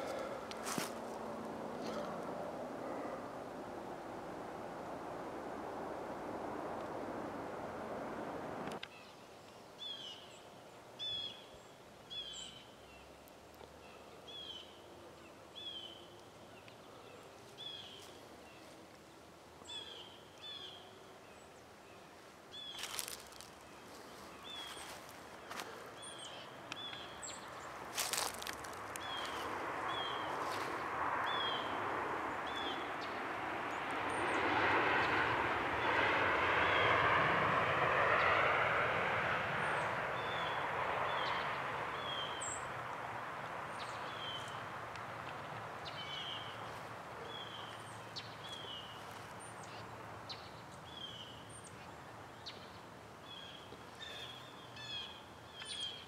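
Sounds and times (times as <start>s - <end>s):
vehicle noise: 0.0s - 8.9s, 22.7s - 50.8s.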